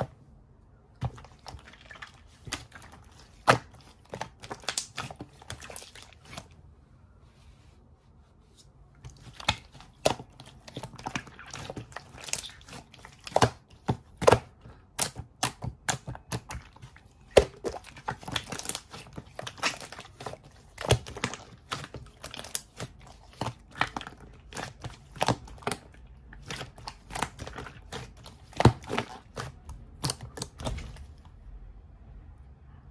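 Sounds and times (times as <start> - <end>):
crinkling and tearing: 9.0 - 31.2.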